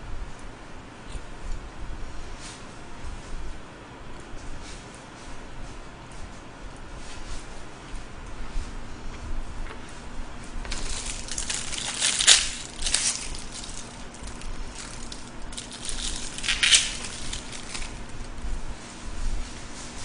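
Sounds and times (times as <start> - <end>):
crunchy chewing: 10.5 - 18.7.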